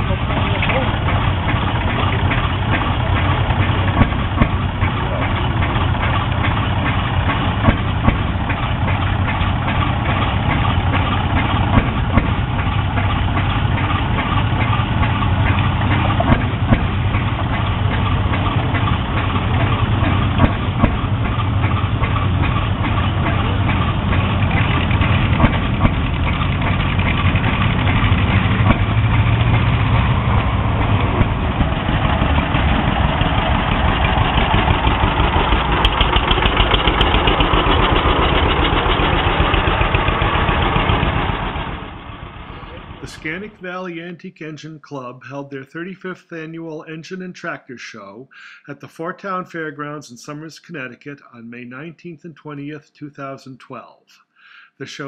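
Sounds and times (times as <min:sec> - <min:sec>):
old engine idling: 0:00.0 - 0:43.9.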